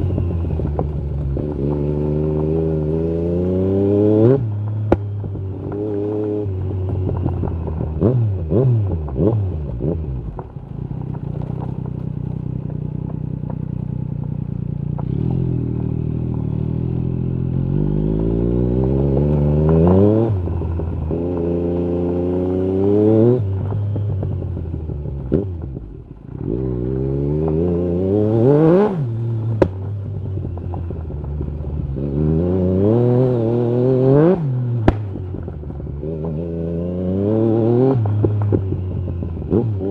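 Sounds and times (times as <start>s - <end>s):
motorcycle engine accelerating hard: 0.0s - 39.9s
exhaust cracks: 4.5s - 17.1s, 34.0s - 36.4s.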